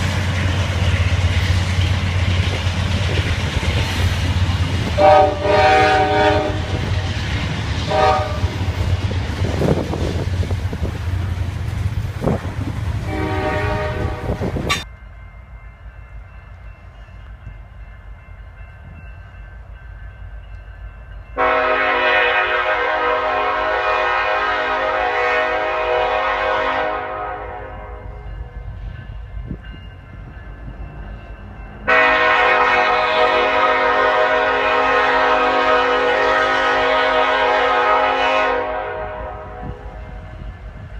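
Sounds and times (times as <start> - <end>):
train rumbling: 0.0 - 40.9
locomotive air horn blasts: 5.0 - 7.0, 7.9 - 8.6, 13.0 - 14.8, 21.4 - 28.3, 31.9 - 40.2.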